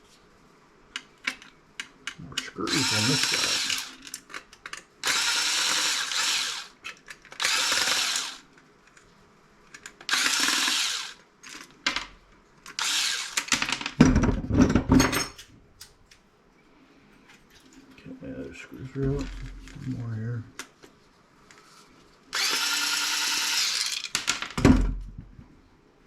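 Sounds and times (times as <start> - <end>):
power drill motor whining: 2.6 - 4.0, 5.0 - 6.7, 7.4 - 8.4, 10.1 - 11.2, 12.8 - 13.5, 22.3 - 24.2
knocking and rattling: 13.6 - 15.4.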